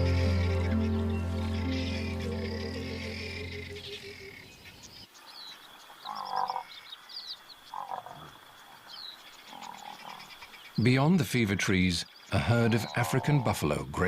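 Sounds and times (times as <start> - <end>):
music: 0.0 - 4.2
thin high trill: 0.0 - 4.4
high chirps: 0.0 - 4.6
frog croaking: 5.8 - 8.5, 12.0 - 13.5.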